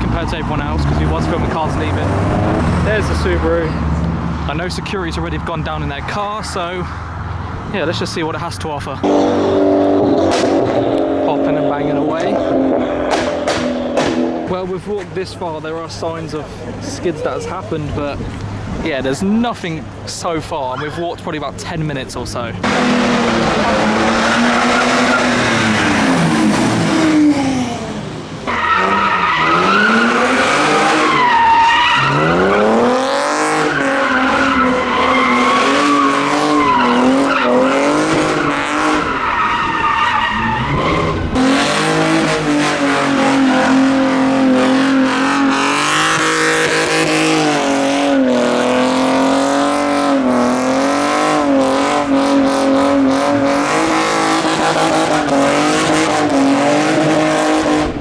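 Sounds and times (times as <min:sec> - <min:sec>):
car engine revving: 0:00.0 - 0:18.8, 0:22.2 - 0:58.0
tyres squealing: 0:28.4 - 0:47.3.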